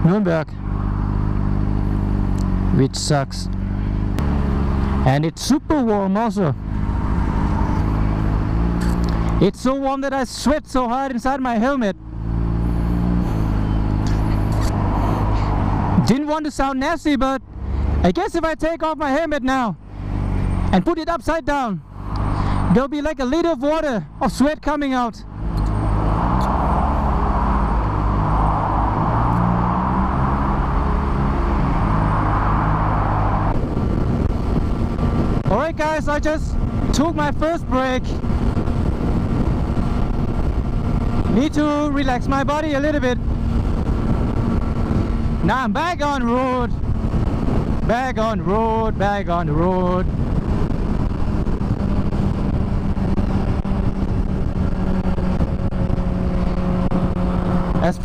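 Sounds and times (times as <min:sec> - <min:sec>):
wind rushing over microphone: 0:03.5 - 0:18.5, 0:20.0 - 0:58.0
motorcycle engine running: 0:33.5 - 0:58.0.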